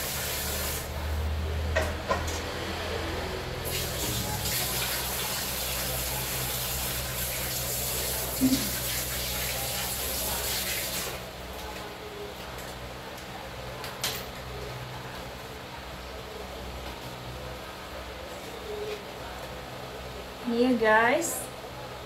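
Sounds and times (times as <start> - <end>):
food sizzling in a pan: 0.0 - 0.9, 3.6 - 11.2.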